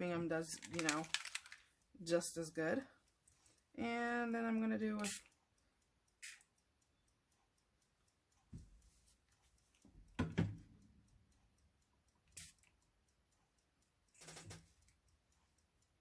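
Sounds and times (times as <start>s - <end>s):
spray bottle hissing: 5.0s - 5.3s, 6.2s - 6.5s, 12.4s - 12.6s.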